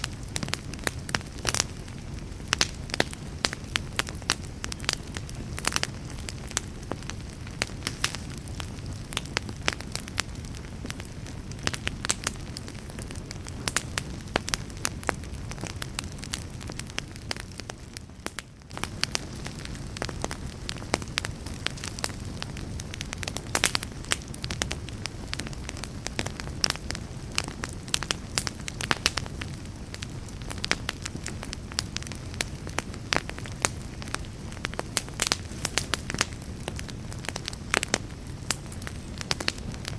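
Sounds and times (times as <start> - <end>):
campfire crackling and popping: 0.0 - 39.9
low rumble of flames: 0.0 - 39.9.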